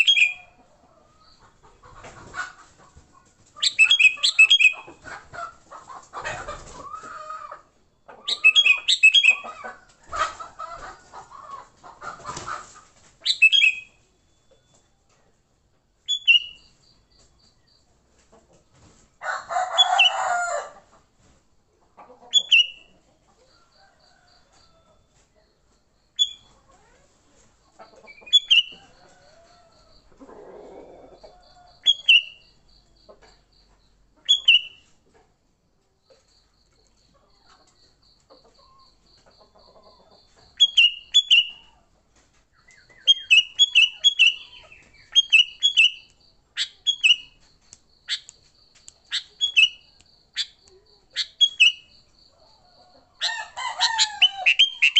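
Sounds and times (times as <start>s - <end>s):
bulbuls calling: 42.7s - 47.4s, 48.1s - 51.9s, 53.3s - 54.9s.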